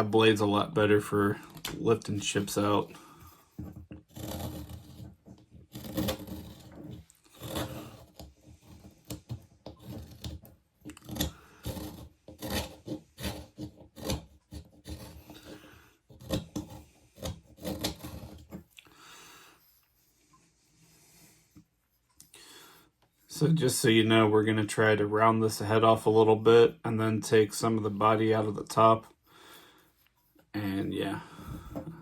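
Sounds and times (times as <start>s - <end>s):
knife scraping wood: 0.0s - 18.8s.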